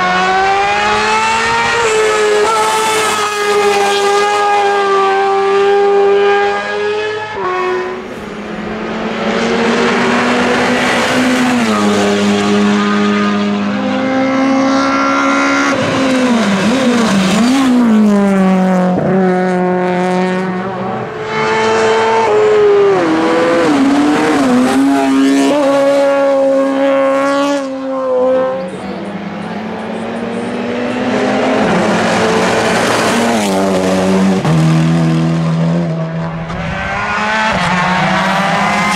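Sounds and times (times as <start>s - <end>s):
race car engine at full throttle: 0.0s - 38.9s.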